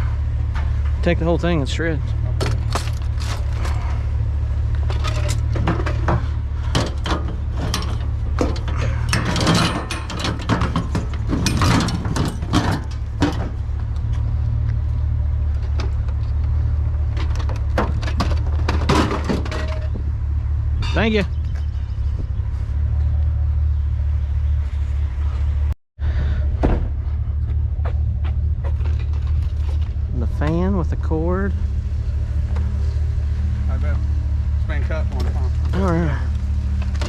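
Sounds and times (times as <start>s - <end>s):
vehicle engine idling: 0.0s - 37.0s
scrap metal clanking: 4.8s - 13.6s, 17.2s - 20.0s.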